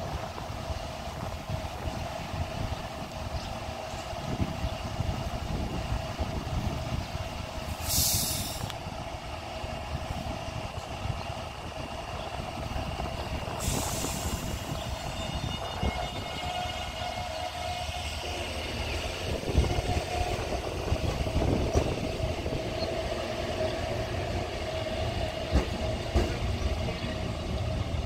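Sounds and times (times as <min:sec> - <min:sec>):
metro train rumble and hum: 0:00.0 - 0:28.0
train air hiss: 0:03.8 - 0:11.1, 0:11.8 - 0:24.0.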